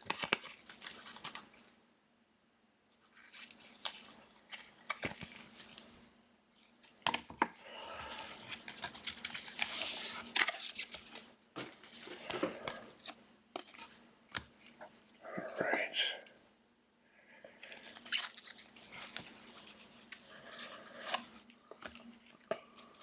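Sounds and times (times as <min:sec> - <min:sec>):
cards being handled: 0:00.0 - 0:01.7, 0:03.2 - 0:05.9, 0:06.6 - 0:14.9, 0:17.7 - 0:23.0
card pack wrappers tearing: 0:17.7 - 0:21.4.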